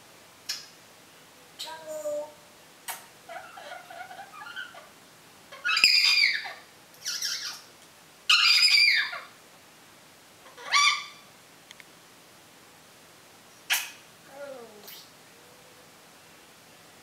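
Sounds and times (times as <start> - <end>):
parrot whistling calls: 5.6 - 7.6, 8.3 - 9.3, 10.6 - 11.2.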